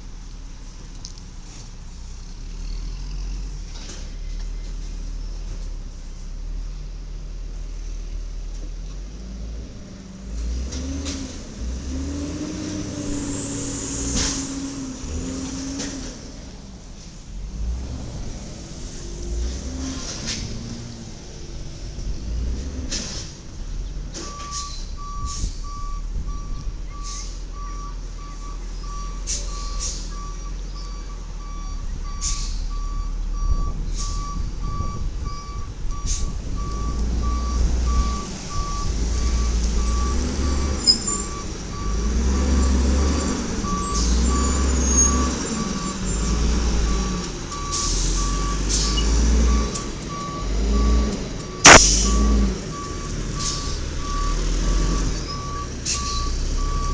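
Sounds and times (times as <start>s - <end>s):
truck reversing alarm beeping: 24.1s - 56.9s
short sharp burst: 51.6s - 52.2s.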